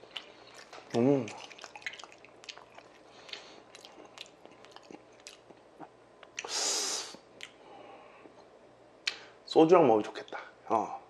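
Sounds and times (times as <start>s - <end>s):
person chewing food: 0.0s - 6.6s, 7.4s - 7.6s
short loud hiss: 6.5s - 7.2s.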